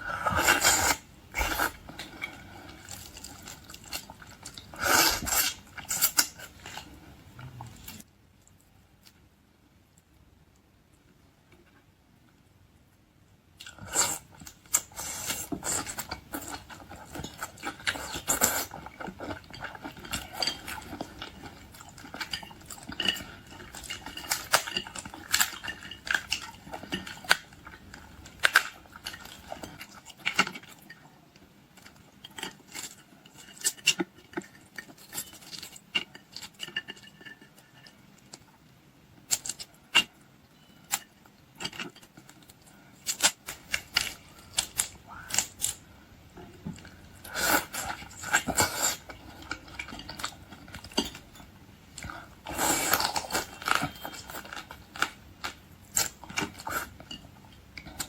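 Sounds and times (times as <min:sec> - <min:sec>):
chewing: 0:13.6 - 0:31.1, 0:46.6 - 0:58.0.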